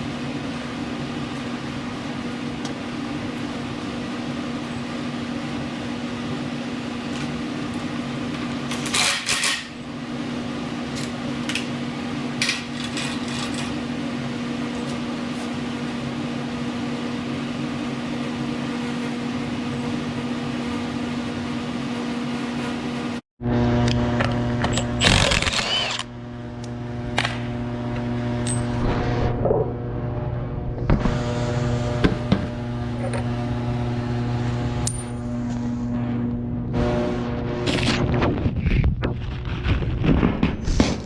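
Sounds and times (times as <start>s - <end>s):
machine humming: 9.8s - 39.8s
hand tools clinking: 34.8s - 35.3s.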